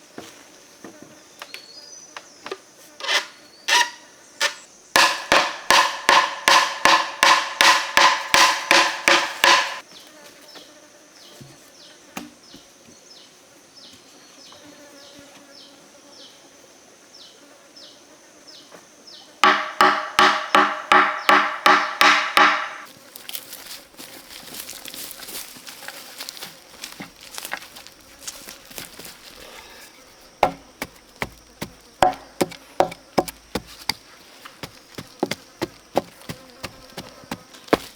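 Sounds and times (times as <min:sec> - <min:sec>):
faint ticking insect call: 0:00.0 - 0:06.8, 0:22.8 - 0:37.9
rustling crackle: 0:22.9 - 0:30.0.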